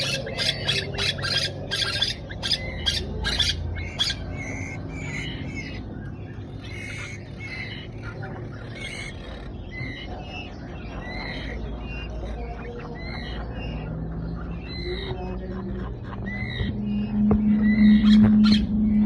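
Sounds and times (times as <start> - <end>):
bird chick squawking: 0.0 - 5.8
chick chirping: 0.0 - 5.8.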